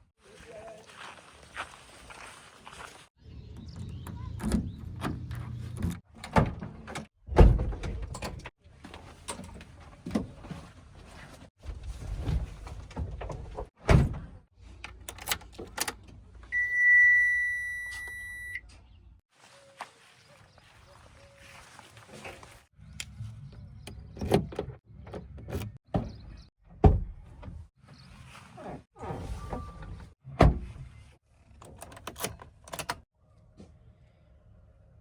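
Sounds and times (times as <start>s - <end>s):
high-pitched beep: 16.6s - 18.6s.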